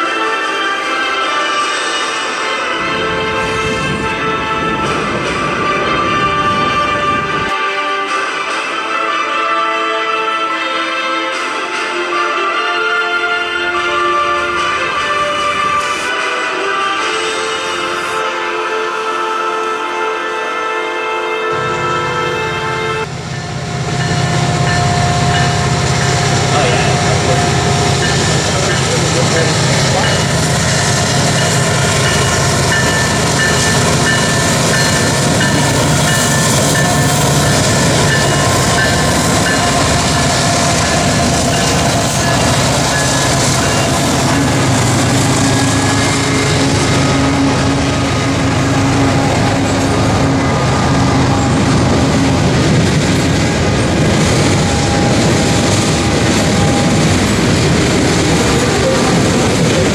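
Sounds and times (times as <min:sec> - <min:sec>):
train wheels rumbling on rails: 0:00.0 - 0:09.1, 0:10.6 - 0:18.3, 0:21.5 - 0:59.9
diesel locomotive engine running: 0:21.5 - 0:59.9.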